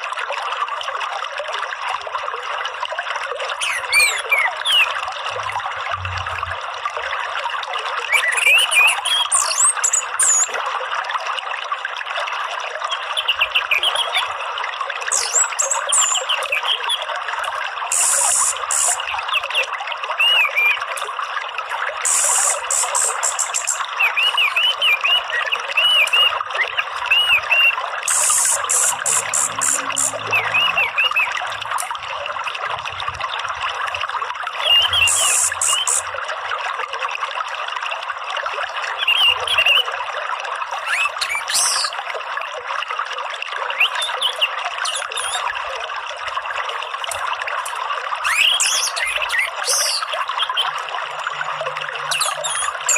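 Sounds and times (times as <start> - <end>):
water trickling: 0.0 - 52.9
birds chirping and whistling: 3.6 - 5.0, 8.1 - 10.5, 15.1 - 16.9, 17.9 - 19.6, 20.2 - 20.8, 22.1 - 26.4, 27.1 - 31.4, 34.6 - 36.1, 40.8 - 42.0, 43.8 - 45.4, 48.2 - 50.7, 52.0 - 52.9
high buzzy bird calls: 3.6 - 5.0, 15.1 - 16.9, 17.9 - 20.8, 22.0 - 31.8, 34.6 - 36.1, 40.8 - 42.0, 43.8 - 45.5, 48.2 - 51.3, 52.0 - 52.9.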